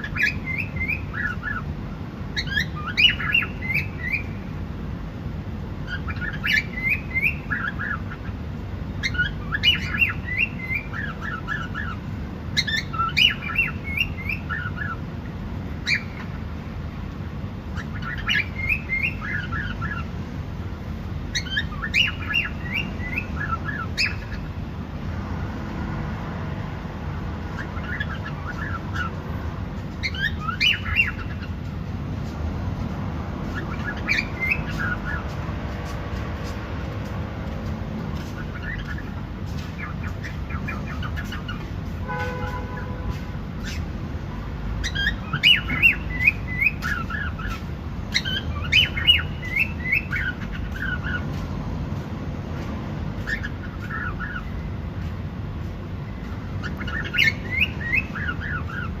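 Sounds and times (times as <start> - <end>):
cockatiel chirping: 0.0 - 1.6, 2.4 - 4.4, 5.9 - 8.3, 9.0 - 12.0, 12.6 - 15.0, 15.8 - 16.3, 17.8 - 20.1, 21.3 - 24.5, 27.6 - 29.2, 30.0 - 31.6, 33.4 - 35.3, 38.2 - 41.7, 44.8 - 51.3, 53.2 - 54.6, 56.6 - 59.0.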